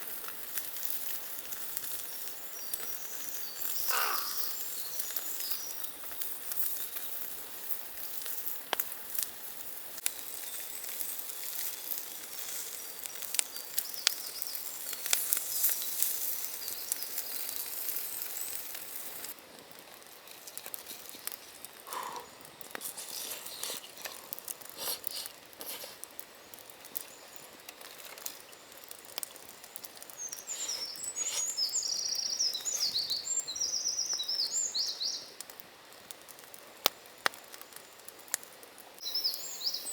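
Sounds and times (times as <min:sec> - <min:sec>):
irregular crackling and ticking: 0:00.0 - 0:31.8, 0:35.4 - 0:39.0
songbird twittering: 0:02.0 - 0:05.9, 0:30.1 - 0:35.3, 0:39.0 - 0:39.9.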